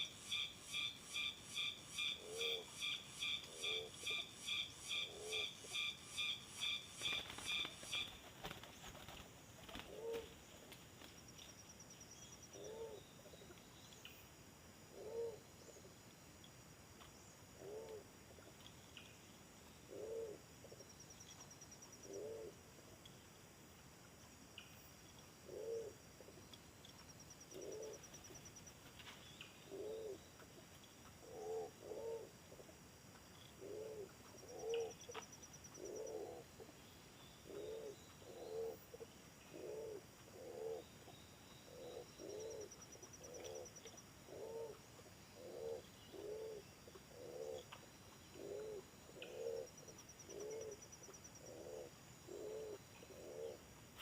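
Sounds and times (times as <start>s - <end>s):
dove cooing: 2.0s - 4.3s, 5.0s - 5.9s, 7.0s - 10.4s, 12.6s - 13.4s, 14.9s - 15.8s, 17.6s - 18.5s, 19.9s - 20.8s, 22.1s - 22.6s, 25.4s - 26.4s, 27.5s - 28.1s, 29.7s - 30.2s, 31.2s - 32.8s, 33.6s - 36.7s, 37.4s - 40.9s, 41.7s - 44.8s, 45.4s - 53.6s.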